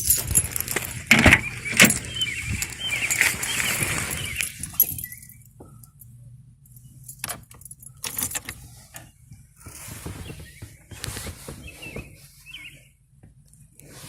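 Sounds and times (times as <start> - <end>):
clicks and rattles: 0.0 - 5.4.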